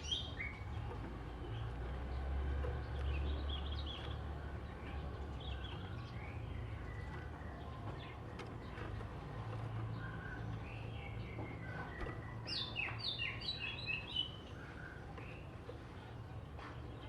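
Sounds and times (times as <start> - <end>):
bird singing chirping phrases: 0.0 - 0.6, 12.4 - 14.6.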